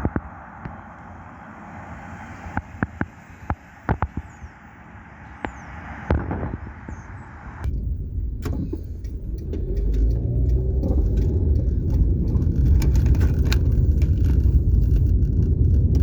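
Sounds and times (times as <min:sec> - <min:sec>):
car road and engine rumble: 0:00.0 - 0:16.0
small clicks and rattles: 0:07.7 - 0:16.0.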